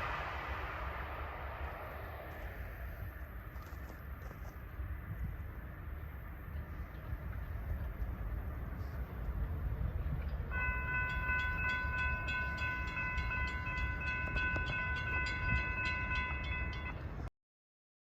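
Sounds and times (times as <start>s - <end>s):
freight train rumbling: 0.0s - 17.3s
crossing bell ringing: 10.5s - 17.3s.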